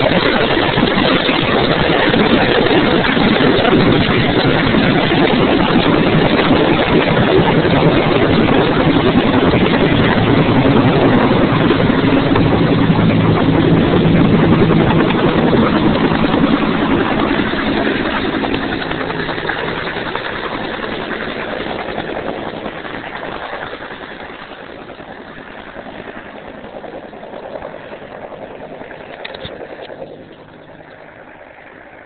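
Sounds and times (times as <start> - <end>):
helicopter turbine and rotor: 0.0 - 32.0.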